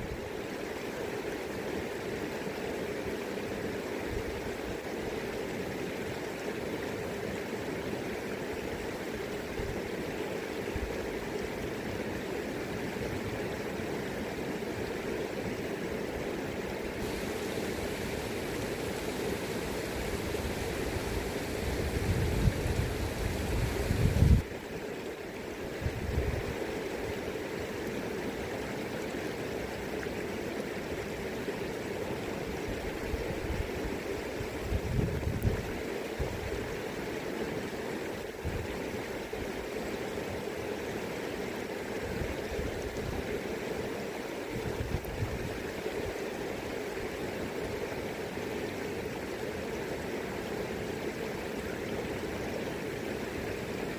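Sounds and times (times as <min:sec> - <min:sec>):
river rushing: 0:00.0 - 0:53.9
wind buffeting microphone: 0:19.4 - 0:24.4, 0:34.6 - 0:35.7.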